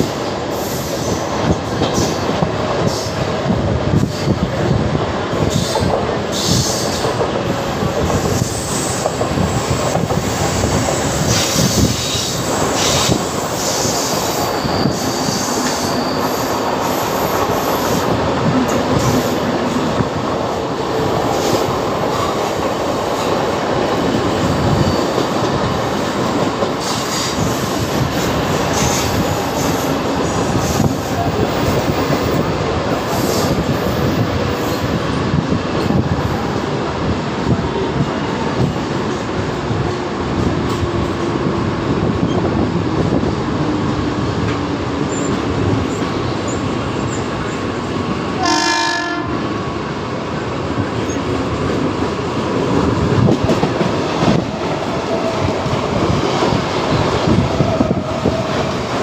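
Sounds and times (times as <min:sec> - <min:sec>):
rail joint clicks: 0:00.0 - 0:48.5, 0:49.1 - 0:59.0
train wheels rumbling on rails: 0:00.0 - 0:59.0
high-pitched wheel squeals: 0:11.1 - 0:18.0.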